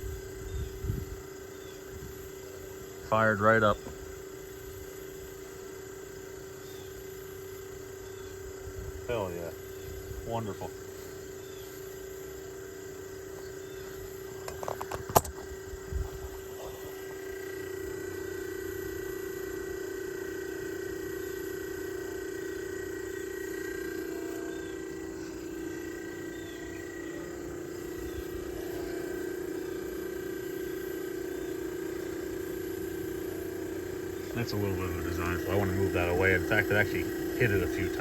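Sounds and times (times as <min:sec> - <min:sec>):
air conditioner compressor humming: 0:00.0 - 0:38.0
sharp click: 0:14.4 - 0:15.5.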